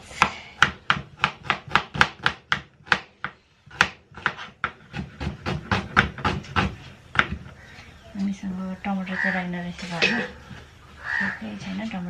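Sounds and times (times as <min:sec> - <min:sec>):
knife chopping onion: 0:00.2 - 0:07.4.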